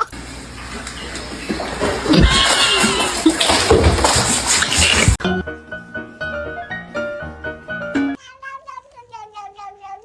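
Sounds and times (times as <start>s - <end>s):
piano notes: 4.8s - 8.2s.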